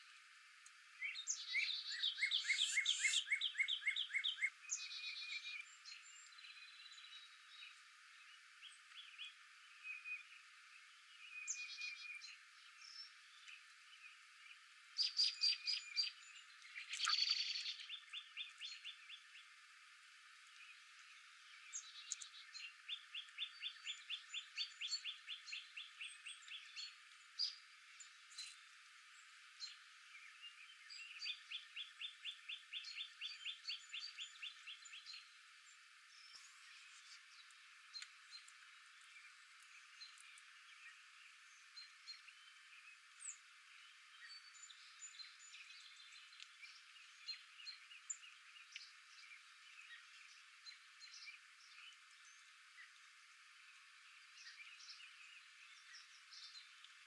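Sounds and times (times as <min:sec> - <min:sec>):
steady outdoor hiss: 0:00.0 - 0:57.0
bird trills: 0:01.0 - 0:05.6, 0:15.0 - 0:19.2
birds chipping: 0:01.0 - 0:57.0.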